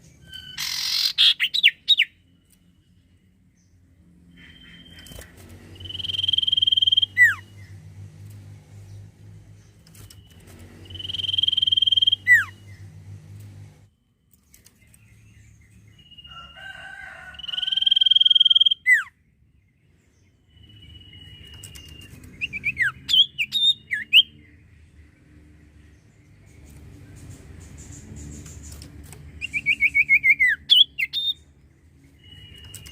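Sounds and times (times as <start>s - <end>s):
bird chirps: 0.0s - 7.8s, 8.8s - 13.1s, 17.4s - 25.1s, 25.8s - 32.9s
bird whistling: 0.2s - 2.2s, 5.8s - 7.4s, 10.8s - 12.7s, 17.5s - 19.1s, 29.4s - 31.4s
low steady hum: 1.8s - 16.2s.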